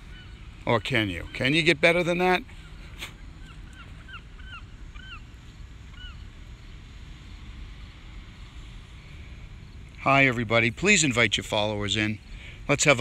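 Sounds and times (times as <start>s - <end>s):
birds calling: 0.0s - 6.7s
low outdoor rumble: 0.0s - 13.0s.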